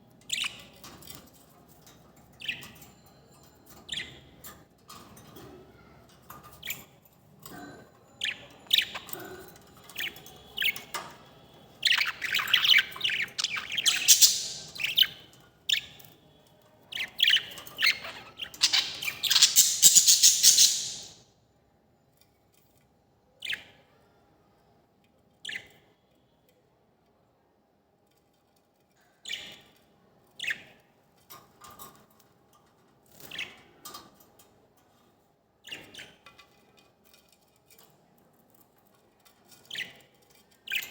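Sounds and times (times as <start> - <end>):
birds chirping: 8.2 - 9.2, 11.7 - 15.9, 16.9 - 21.2.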